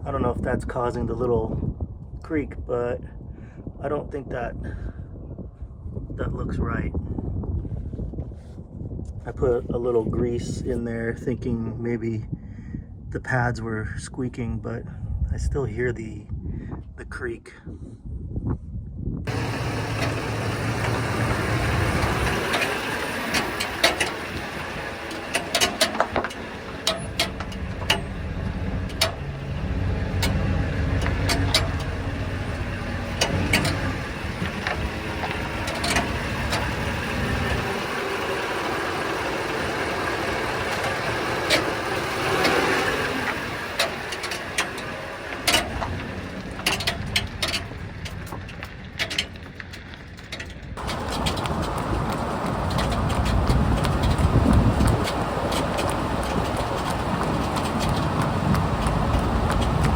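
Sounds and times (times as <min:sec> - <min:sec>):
van engine and road rumble: 0:00.0 - 0:59.9
knocks and rattles: 0:19.3 - 0:59.9.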